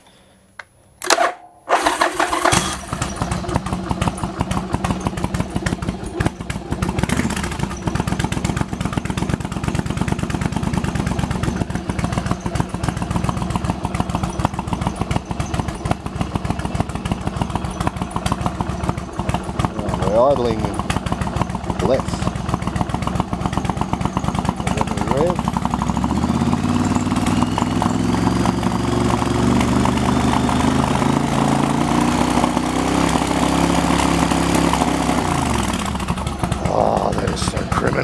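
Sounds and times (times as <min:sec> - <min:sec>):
electric starter cranking: 0:01.0 - 0:06.4
motorcycle engine idling: 0:01.8 - 0:38.0.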